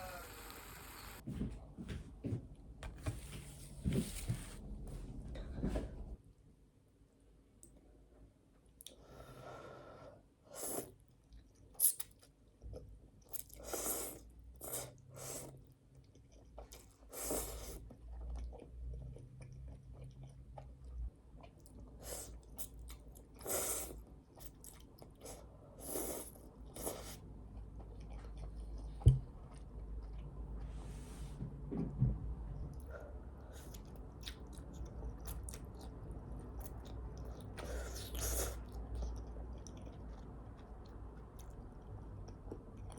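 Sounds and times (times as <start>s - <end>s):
person chewing and crunching food: 10.8s - 30.8s, 32.7s - 42.9s.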